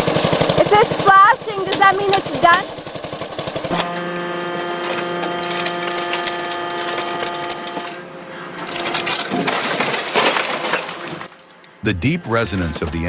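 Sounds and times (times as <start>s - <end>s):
shredding machine whine: 3.7s - 11.6s.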